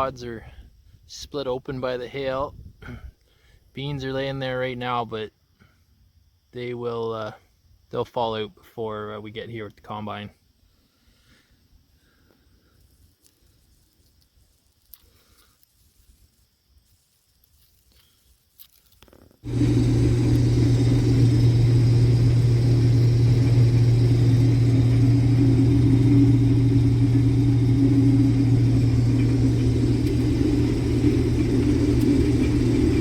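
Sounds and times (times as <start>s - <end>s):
combine harvester running: 19.4s - 33.0s.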